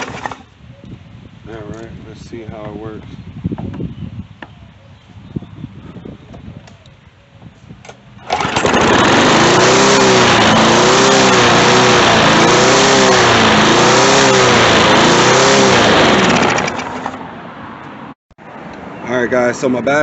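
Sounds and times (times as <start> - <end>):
mower engine starting and revving: 0.0 - 0.5, 7.9 - 17.3.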